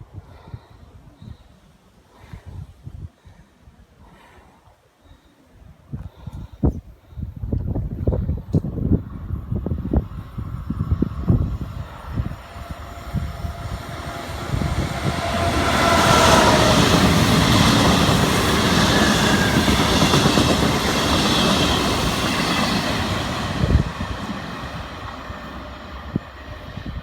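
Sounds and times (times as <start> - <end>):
train passing on tracks: 9.0 - 27.0.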